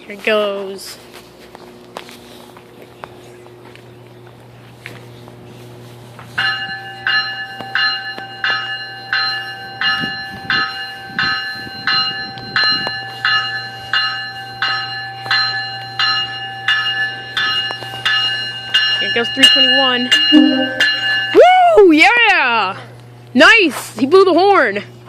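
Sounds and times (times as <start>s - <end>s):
train hum and whine: 0.0s - 22.2s
locomotive bell ringing: 6.4s - 21.5s.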